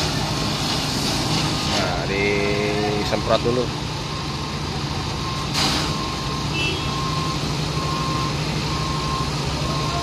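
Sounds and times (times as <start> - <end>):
truck diesel engine running: 0.0 - 10.0
reversing alarm beeping: 2.8 - 10.0.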